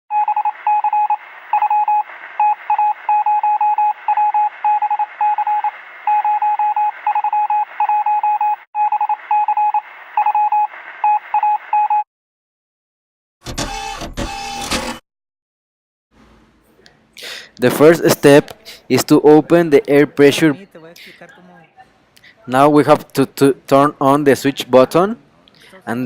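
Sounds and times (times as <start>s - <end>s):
morse code beeps: 0.1s - 12.0s.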